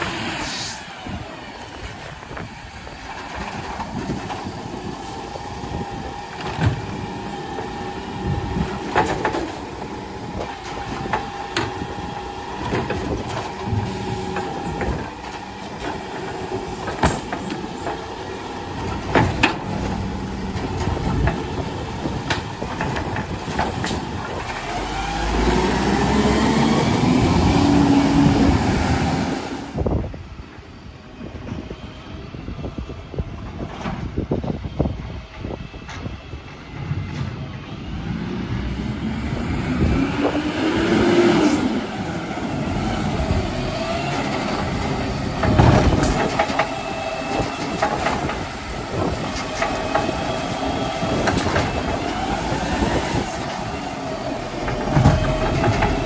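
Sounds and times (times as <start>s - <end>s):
garbage truck engine whining: 0.0s - 56.0s
wind buffeting microphone: 0.0s - 56.0s
engine revving: 18.5s - 29.8s, 37.9s - 56.0s.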